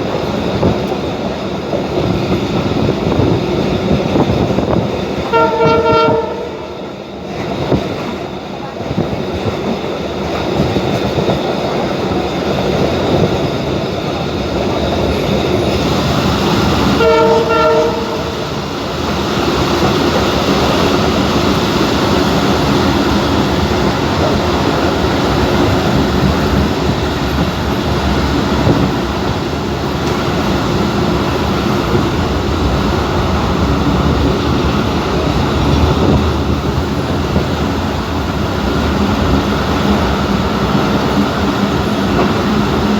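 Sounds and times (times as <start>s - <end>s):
train rumbling and rattling: 0.0s - 42.9s
train horn: 5.2s - 6.8s, 16.9s - 18.5s.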